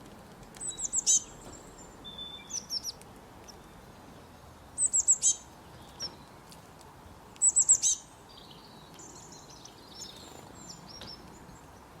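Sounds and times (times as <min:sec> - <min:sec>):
high bird twittering: 0:00.6 - 0:03.0, 0:04.8 - 0:06.2, 0:07.4 - 0:11.2
songbird calling: 0:00.6 - 0:03.8, 0:04.8 - 0:06.3, 0:07.4 - 0:11.9.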